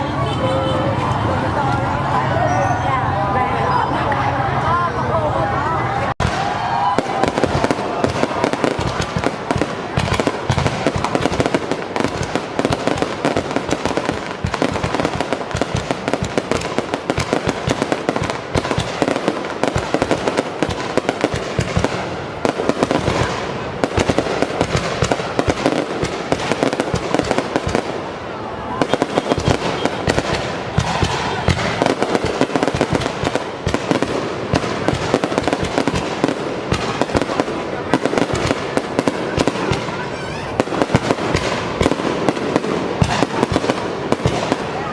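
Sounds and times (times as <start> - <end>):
fireworks bangs and crackles: 0.0 - 44.9.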